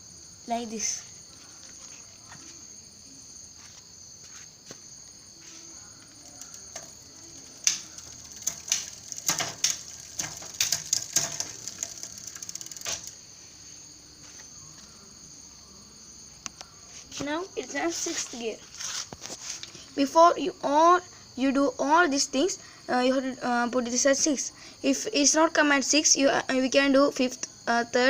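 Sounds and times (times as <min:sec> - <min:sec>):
crickets chirping: 0:00.0 - 0:28.0
bicycle gear shifter clicks: 0:06.0 - 0:13.2
freewheel ratchet ticking: 0:06.0 - 0:13.2.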